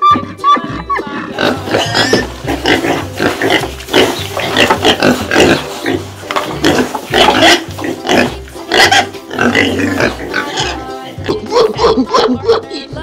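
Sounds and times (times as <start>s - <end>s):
piglets grunting and squealing: 0.0s - 12.9s
background music with low beat: 0.0s - 13.0s.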